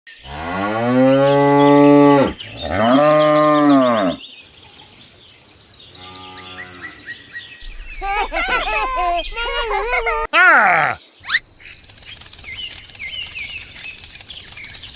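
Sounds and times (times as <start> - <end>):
cow mooing: 0.2 - 4.2, 6.0 - 7.1.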